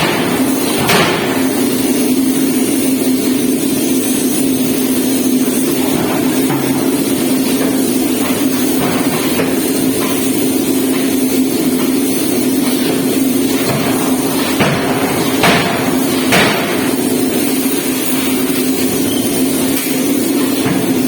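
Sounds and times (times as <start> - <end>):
sharp knocks: 0.0 - 1.5, 13.6 - 16.9
forging press humming: 0.0 - 21.0.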